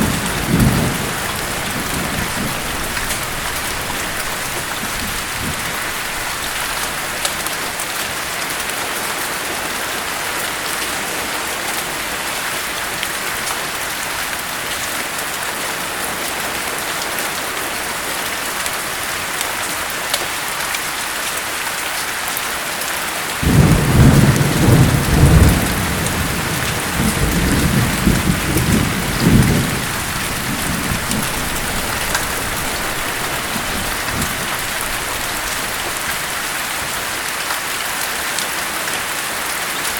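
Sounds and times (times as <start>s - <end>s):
rumbling thunderclap: 0.0s - 7.2s, 23.4s - 36.5s
heavy rain hiss: 0.0s - 39.9s.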